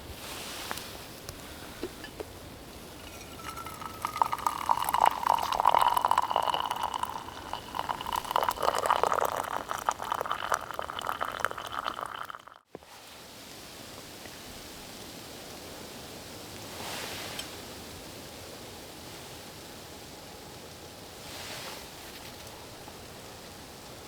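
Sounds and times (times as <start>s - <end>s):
water pouring into container: 2.6s - 12.6s.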